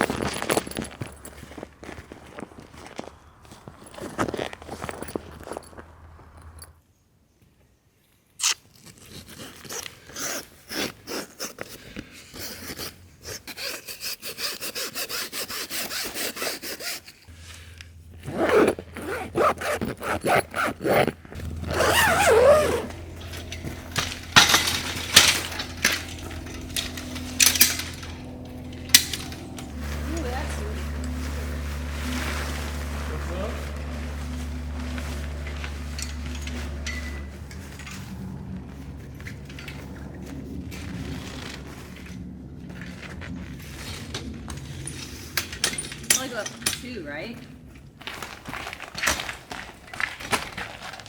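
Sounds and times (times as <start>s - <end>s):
camp gear scraping and knocking: 0.0s - 6.7s, 15.2s - 42.0s.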